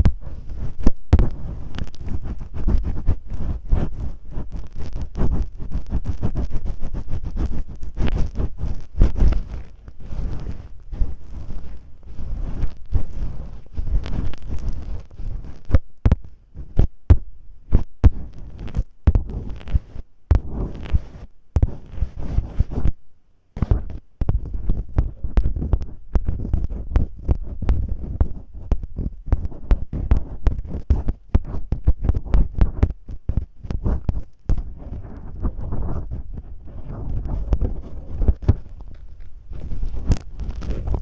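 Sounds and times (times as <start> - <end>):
soft low thumps: 0.0 - 19.4, 20.3 - 20.6
tape crackling clicks: 0.0 - 21.0, 25.0 - 41.0.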